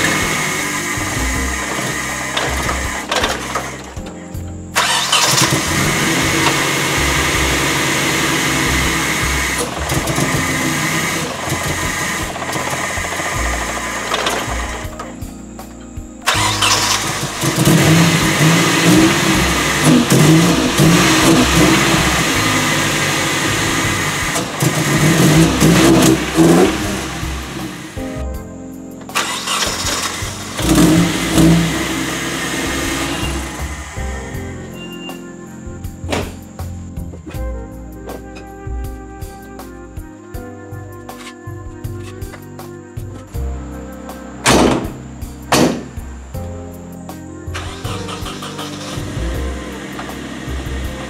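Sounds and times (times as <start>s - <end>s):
car engine starting and revving: 0.0s - 15.1s, 16.2s - 28.0s, 29.2s - 34.7s, 47.5s - 51.0s.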